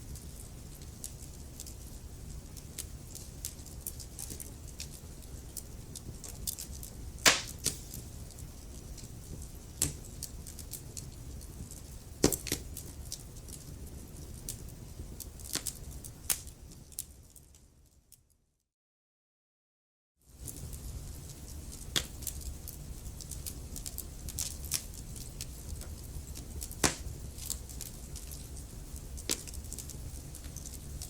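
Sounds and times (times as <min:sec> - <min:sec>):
wood fire crackling: 0:00.0 - 0:18.0, 0:20.3 - 0:31.0
sharp pops of fire: 0:06.2 - 0:08.1, 0:09.0 - 0:10.1, 0:12.2 - 0:12.8, 0:21.7 - 0:22.3, 0:23.2 - 0:30.7.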